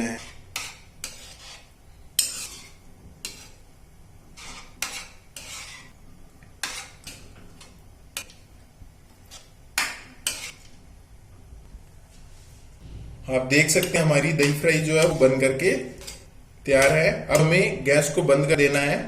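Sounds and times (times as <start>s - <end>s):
spoon knocking and scraping a pan: 0.0s - 3.6s, 4.3s - 5.9s, 6.6s - 8.4s, 9.3s - 10.8s, 12.8s - 17.7s.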